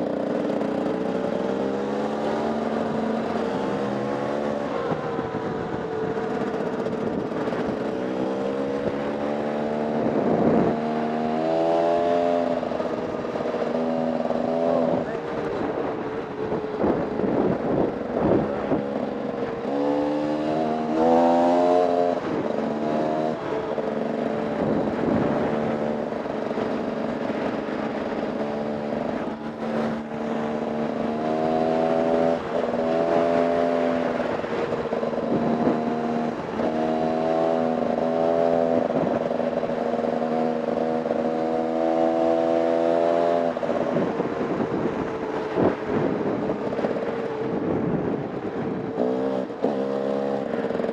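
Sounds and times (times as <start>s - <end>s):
wind noise: 0.0s - 50.9s
dirt bike engine revving: 17.4s - 23.5s.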